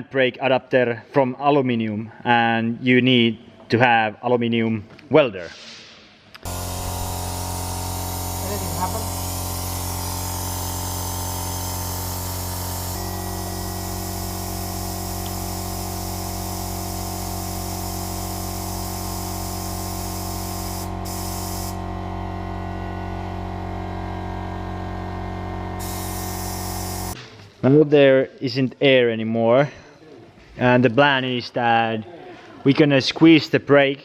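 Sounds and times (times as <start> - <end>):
compressed air hissing: 5.5 - 21.8, 25.8 - 27.2
steady hum: 6.3 - 19.0, 19.7 - 27.2.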